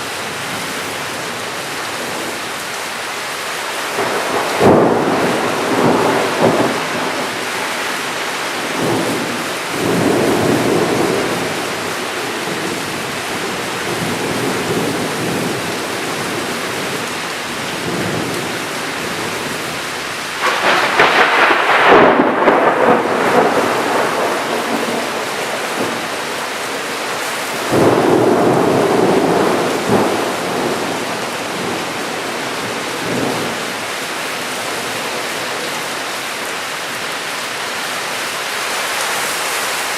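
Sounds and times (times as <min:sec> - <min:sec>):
steady rain: 0:00.0 - 0:39.9
thunder rolling: 0:04.0 - 0:16.5, 0:20.4 - 0:33.9.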